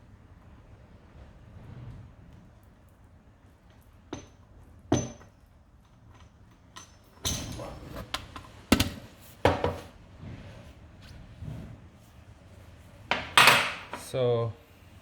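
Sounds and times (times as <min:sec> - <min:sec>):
tools knocking and clinking: 0:04.2 - 0:05.3, 0:13.1 - 0:14.1.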